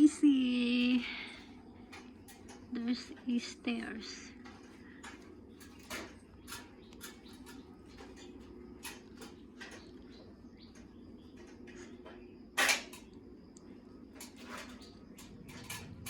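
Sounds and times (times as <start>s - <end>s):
steady low hum: 0.0s - 16.0s
handling knocks and clicks: 0.8s - 16.0s.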